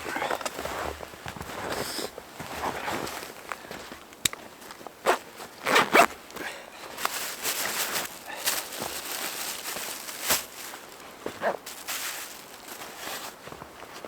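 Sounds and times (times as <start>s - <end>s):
rustling: 5.4s - 14.0s.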